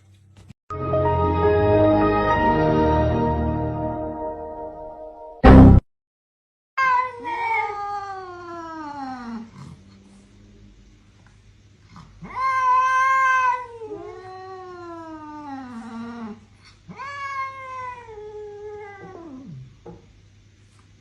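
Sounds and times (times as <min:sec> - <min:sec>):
cat yowling: 0:06.8 - 0:09.5, 0:12.2 - 0:19.6.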